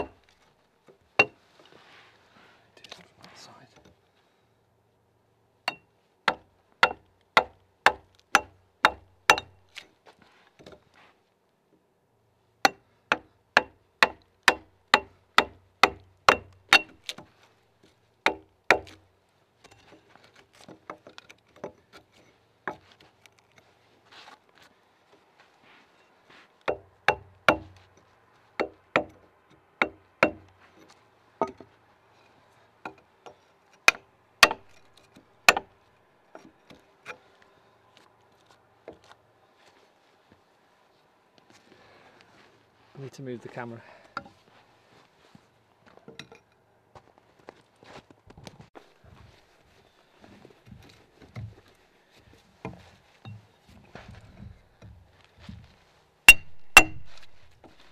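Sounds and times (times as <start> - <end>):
axe chopping into log: 18.3 - 19.0, 33.9 - 34.8, 56.3 - 57.4.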